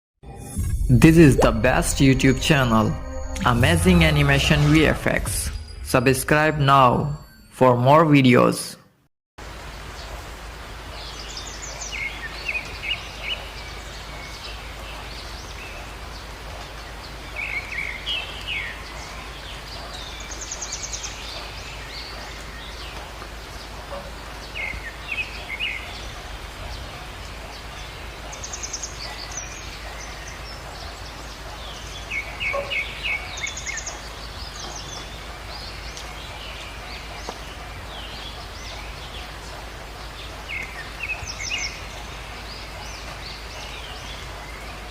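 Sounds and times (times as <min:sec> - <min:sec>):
birds chirping: 0:09.6 - 0:44.9.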